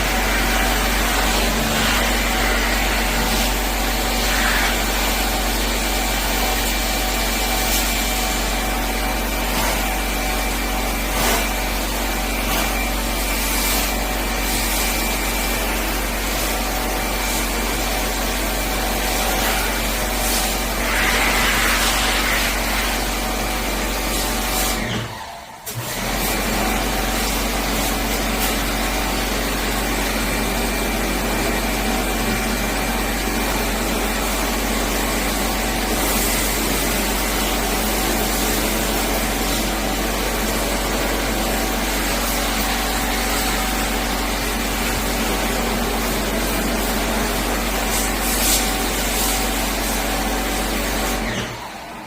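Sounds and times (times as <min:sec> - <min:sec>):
pressure washer running: 0:00.0 - 0:52.0.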